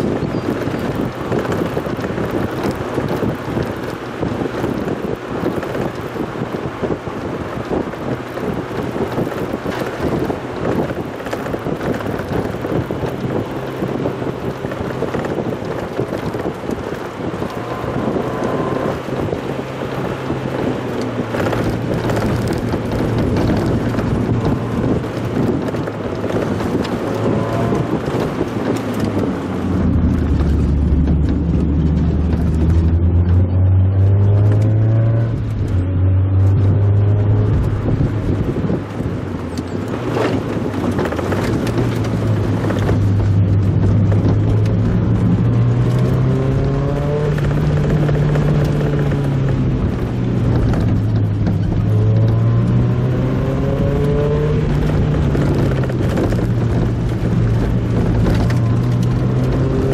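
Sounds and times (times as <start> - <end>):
car engine: 0.0 - 59.9
road noise: 0.0 - 59.9
wind noise: 0.0 - 59.9.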